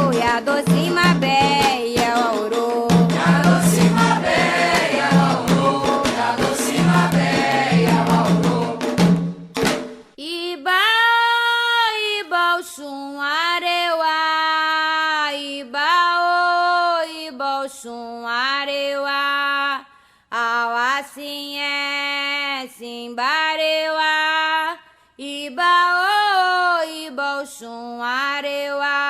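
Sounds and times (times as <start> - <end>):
person singing alone: 0.0 - 4.1
hand drums: 0.0 - 10.2
group singing: 2.9 - 9.2.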